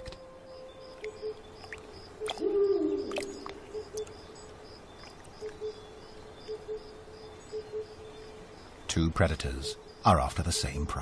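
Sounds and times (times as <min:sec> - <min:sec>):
bird hooting: 0:02.2 - 0:04.2, 0:07.5 - 0:08.0.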